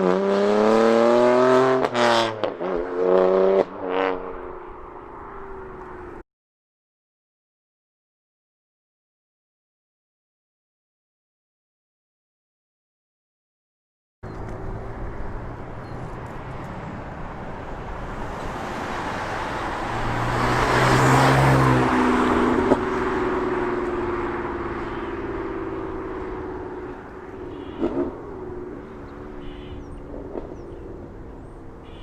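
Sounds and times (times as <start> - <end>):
car driving past: 18.0 - 29.2.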